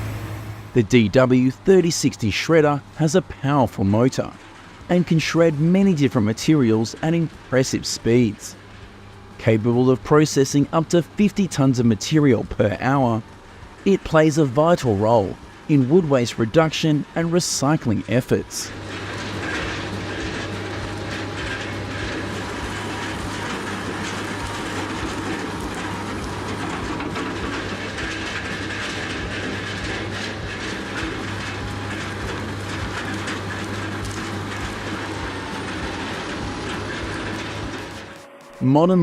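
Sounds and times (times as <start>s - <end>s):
low engine drone: 0.0s - 39.0s
wood cracking and knocking: 18.7s - 38.2s.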